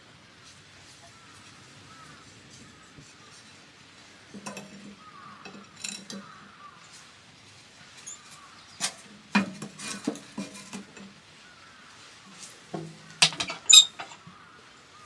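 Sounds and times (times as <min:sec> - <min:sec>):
utensils clinking against dishes: 0:04.4 - 0:06.3, 0:13.2 - 0:14.2.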